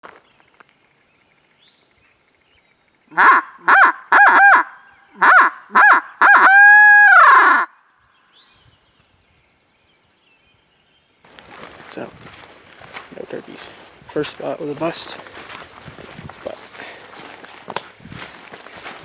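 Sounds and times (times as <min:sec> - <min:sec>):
bird calling loudly: 0:03.1 - 0:07.8.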